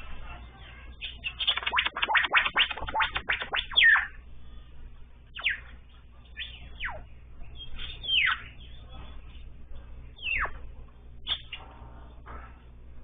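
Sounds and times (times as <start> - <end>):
bird calling: 5.3 - 8.8.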